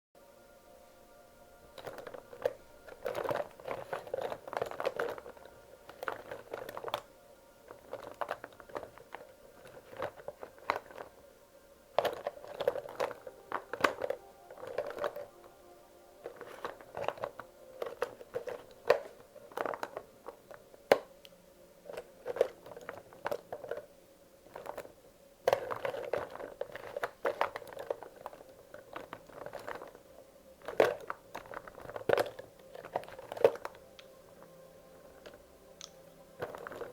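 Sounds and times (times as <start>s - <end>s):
crayons clicking and rattling: 1.6s - 11.2s, 11.9s - 36.9s.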